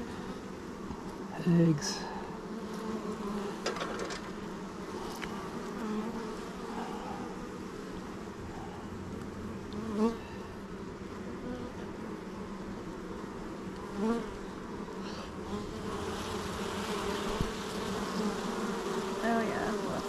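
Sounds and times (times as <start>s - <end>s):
bees buzzing: 0.0s - 20.0s
louder bee buzz: 0.0s - 20.0s.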